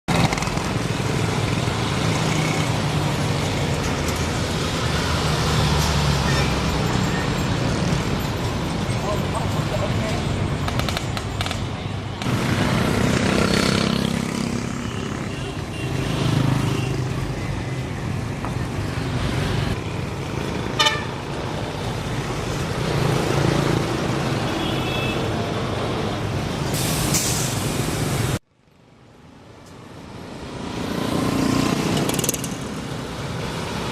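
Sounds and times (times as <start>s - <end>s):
road traffic noise: 0.0s - 33.9s
truck and bus engines: 0.1s - 33.9s
vehicle horn honk: 20.8s - 21.1s
brief air hiss: 26.7s - 27.8s.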